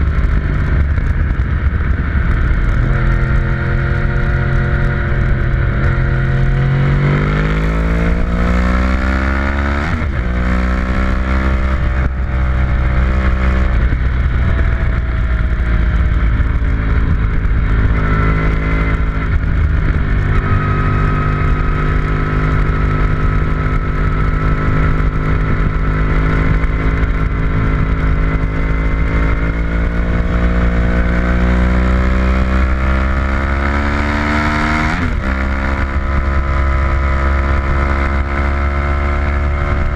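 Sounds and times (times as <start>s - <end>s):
race car engine revving: 1.0s - 13.9s.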